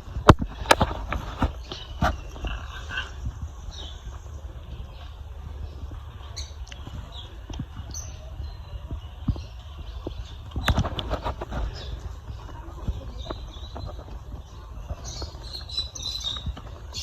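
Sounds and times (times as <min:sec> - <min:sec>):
birds fluttering: 0:00.0 - 0:17.0
light knocks and rustles: 0:05.8 - 0:17.0.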